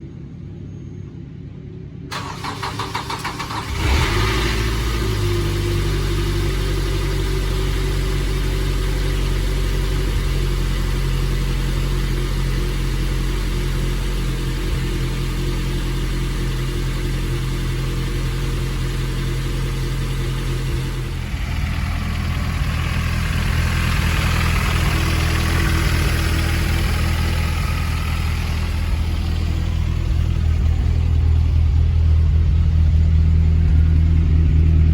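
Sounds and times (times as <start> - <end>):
starter motor cranking: 2.1 - 4.1
car engine idling: 2.1 - 34.9.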